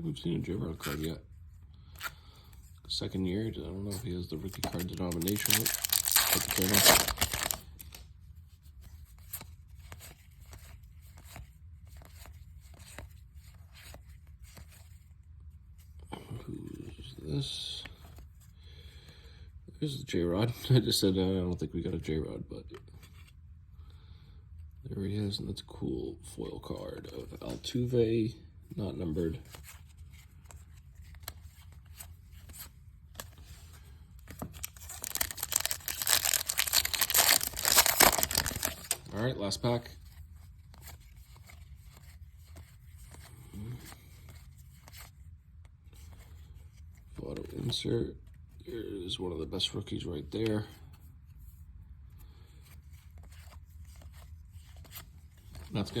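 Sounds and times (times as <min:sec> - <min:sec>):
paper cards being flipped: 0:04.4 - 0:08.0, 0:29.5 - 0:39.1
plastic wrapper tearing and crinkling: 0:04.5 - 0:08.0, 0:34.4 - 0:39.2.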